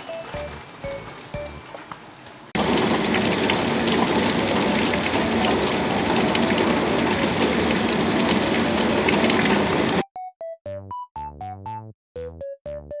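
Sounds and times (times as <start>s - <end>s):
heavy rain on concrete: 0.0s - 10.0s.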